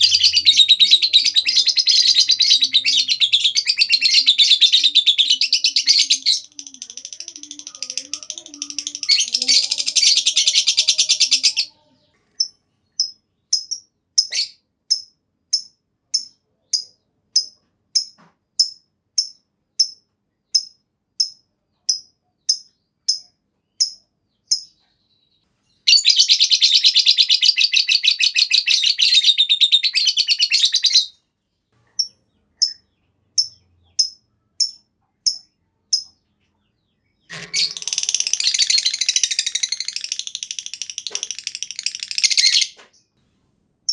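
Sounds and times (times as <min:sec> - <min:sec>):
sharp bird chirps: 0:00.0 - 0:11.6, 0:12.4 - 0:31.1, 0:31.9 - 0:43.2
lovebird trilling chatter: 0:00.0 - 0:11.8, 0:37.3 - 0:42.8.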